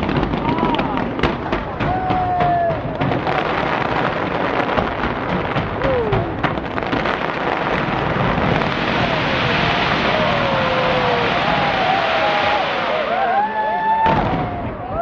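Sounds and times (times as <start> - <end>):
fireworks cracks: 0.0 - 15.0
fireworks rumble: 0.0 - 15.0.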